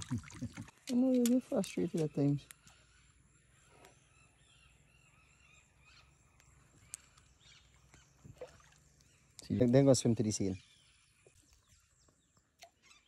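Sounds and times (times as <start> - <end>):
faint bird calls: 1.4 - 9.7.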